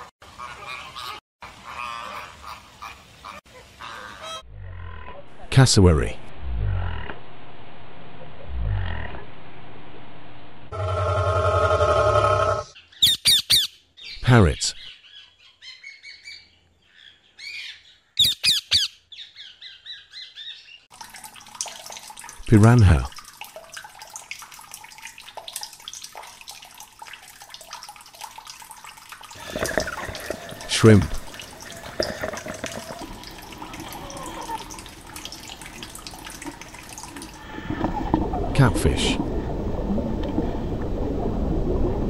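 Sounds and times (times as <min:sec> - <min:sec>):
parrots squawking and chirping: 0:12.7 - 0:14.2, 0:17.4 - 0:20.5
small drips and clicks: 0:20.9 - 0:38.3, 0:40.2 - 0:41.0
water rushing: 0:20.9 - 0:42.0.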